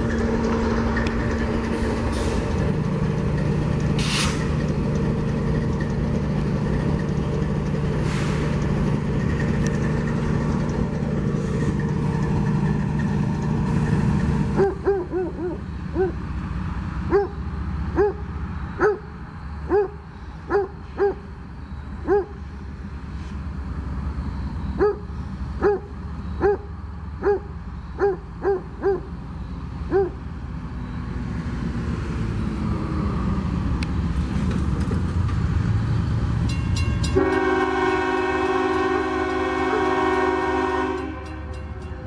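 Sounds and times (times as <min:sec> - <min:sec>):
train rumble: 0:00.0 - 0:42.0
locomotive air horn chord: 0:37.1 - 0:41.8.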